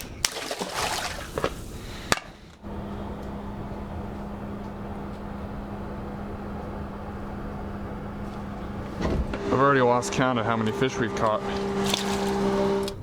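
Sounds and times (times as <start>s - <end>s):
water splashing: 0.0s - 1.8s
low motor hum: 2.5s - 13.0s.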